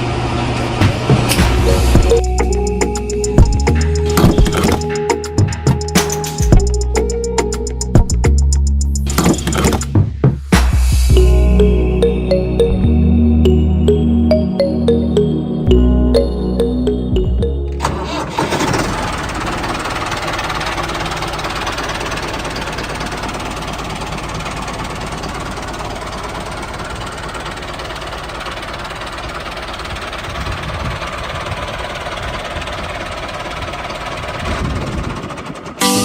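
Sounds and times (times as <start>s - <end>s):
tractor tiller rattling: 9.0s - 9.9s, 17.8s - 36.0s.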